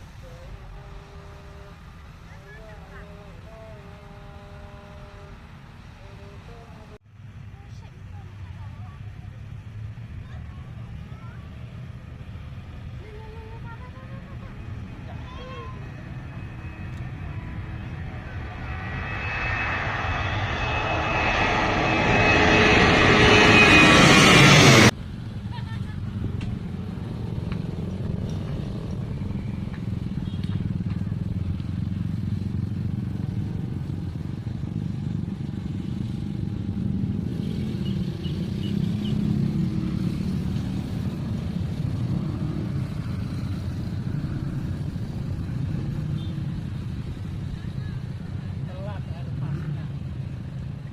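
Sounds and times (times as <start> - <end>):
vehicle engine rumbling: 0.0 - 50.9
jet engines rushing and whining: 13.6 - 25.0.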